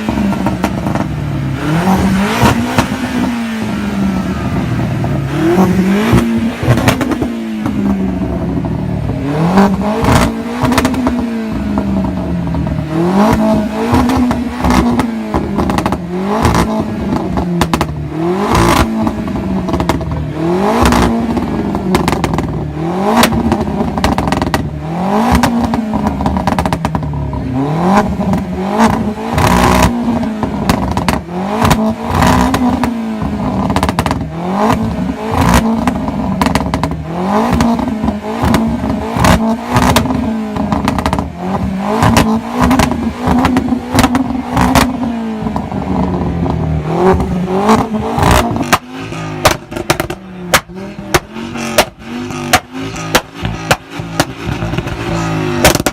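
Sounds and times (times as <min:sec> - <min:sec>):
car engine revving: 0:00.0 - 0:55.9
exhaust pops and cracks: 0:13.3 - 0:27.4, 0:28.1 - 0:55.9.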